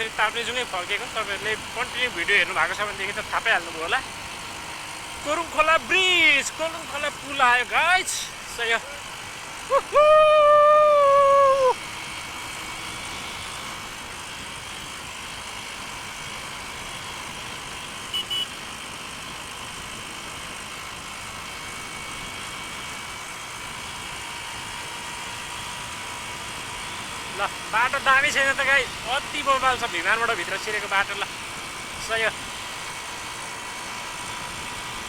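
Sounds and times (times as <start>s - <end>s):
motorcycle engine drone: 0.0s - 35.0s
short high beep: 18.1s - 18.5s.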